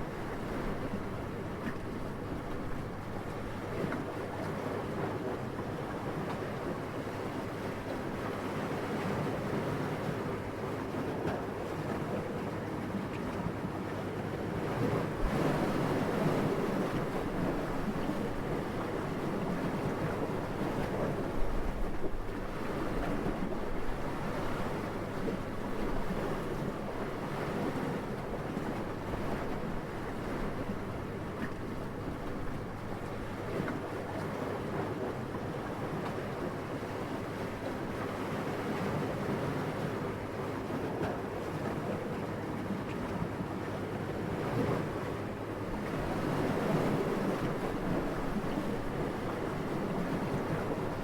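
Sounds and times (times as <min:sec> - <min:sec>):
gentle wind blowing: 0:44.5 - 0:51.0.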